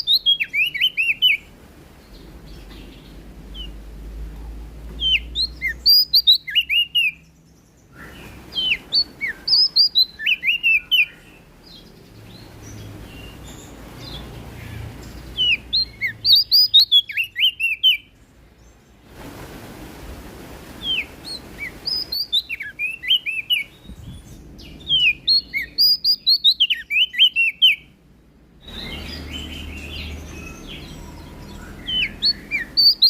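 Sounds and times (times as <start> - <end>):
bird chirping: 0.0 - 4.0, 4.9 - 19.0, 20.8 - 28.0, 28.6 - 33.0.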